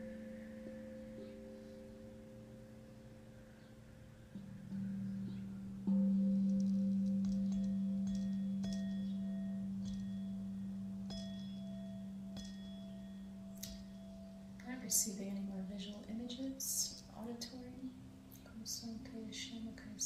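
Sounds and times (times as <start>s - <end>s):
small high ringing tone: 0.0s - 15.2s
singing bowl ringing: 0.0s - 17.0s.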